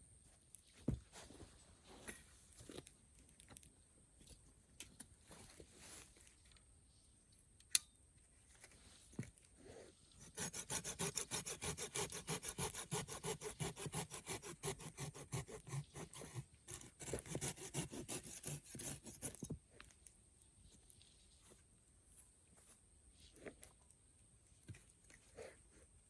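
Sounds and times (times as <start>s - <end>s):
hand saw cutting wood: 10.2s - 19.4s.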